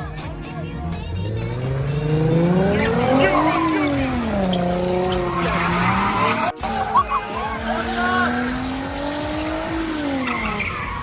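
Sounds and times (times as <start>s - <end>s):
car engine revving: 0.0s - 11.0s
tyres squealing: 0.8s - 11.0s.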